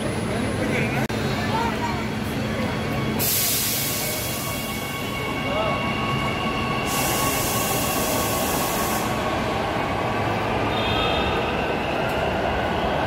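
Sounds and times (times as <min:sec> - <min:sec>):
train rumbling on track: 0:00.0 - 0:13.0
loud hiss: 0:03.2 - 0:04.7, 0:06.9 - 0:09.2.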